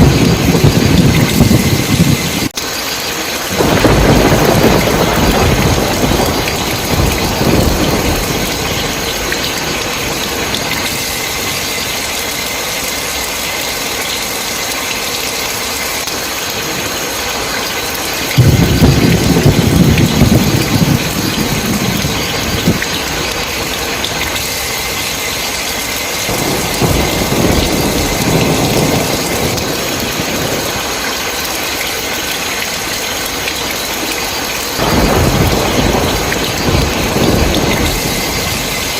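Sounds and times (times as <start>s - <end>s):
thunder rumbling: 0.0s - 14.4s, 17.6s - 38.9s
heavy rain: 0.0s - 38.9s.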